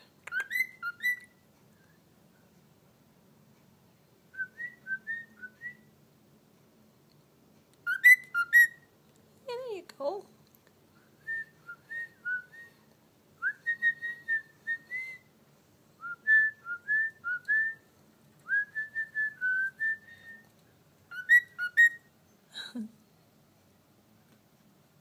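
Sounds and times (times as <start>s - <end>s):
cockatiel whistling a tune: 0.2s - 2.0s, 4.3s - 5.9s, 7.8s - 8.9s, 11.2s - 12.8s, 13.4s - 15.3s, 16.0s - 17.8s, 18.4s - 20.5s, 21.1s - 22.1s.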